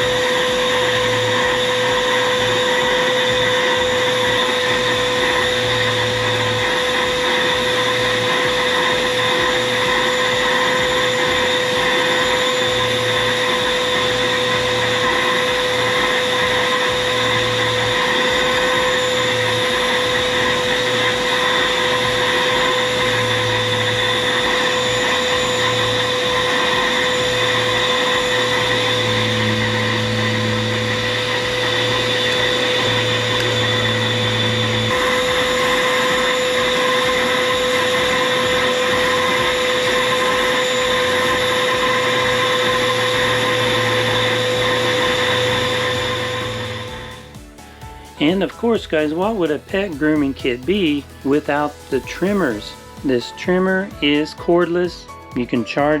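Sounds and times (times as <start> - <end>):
grooming vacuum motor whine: 0.0 - 53.1.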